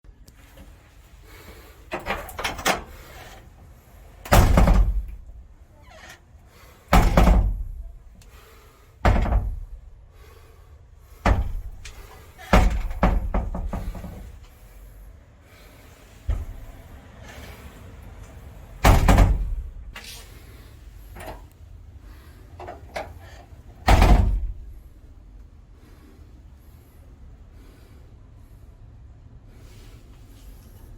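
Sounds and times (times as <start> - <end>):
door slamming shut: 4.3 - 6.2, 6.9 - 8.1, 9.0 - 10.0, 11.2 - 14.4, 16.3 - 16.8, 18.8 - 20.0, 23.8 - 24.8.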